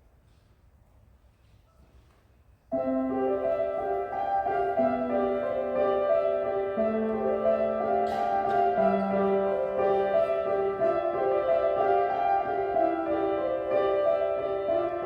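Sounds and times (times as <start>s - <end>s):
violin and piano ensemble: 2.7s - 15.0s.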